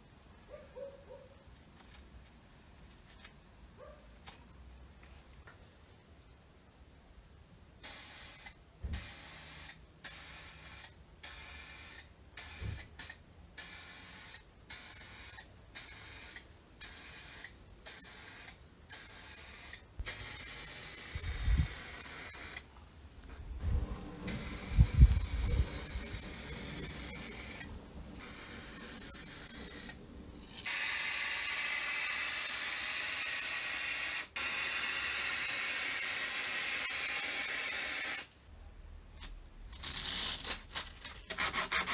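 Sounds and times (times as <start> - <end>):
spray hissing: 7.8 - 22.7, 24.3 - 38.3.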